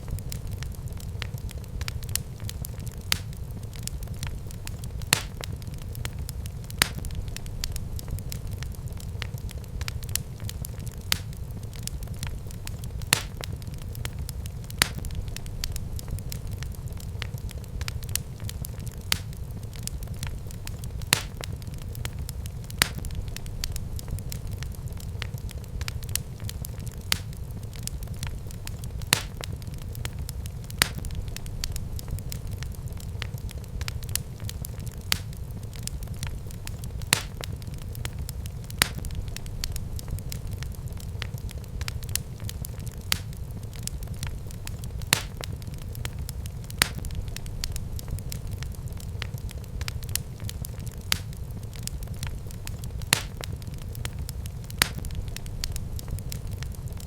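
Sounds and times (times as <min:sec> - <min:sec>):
fire flames rumbling: 0:00.0 - 0:57.0
wood fire crackles and pops: 0:00.0 - 0:57.0.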